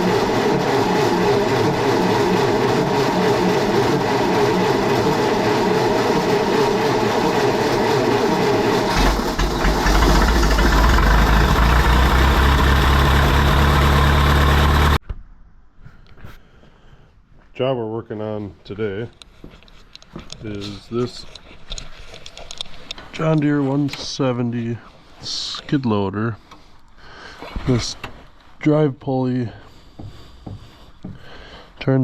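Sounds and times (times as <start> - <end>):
skid steer engine running: 0.0 - 15.0.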